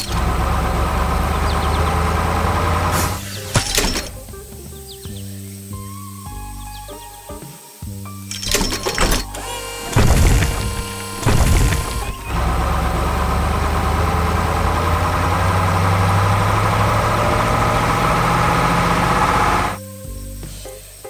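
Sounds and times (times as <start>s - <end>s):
heavy machine engine running: 0.0s - 4.2s, 8.4s - 19.8s.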